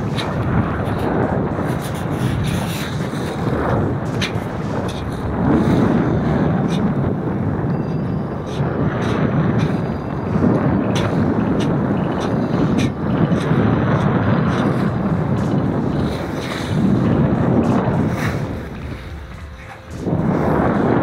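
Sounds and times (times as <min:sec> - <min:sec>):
wind buffeting microphone: 0:00.0 - 0:21.0
water rushing past hull: 0:08.6 - 0:21.0.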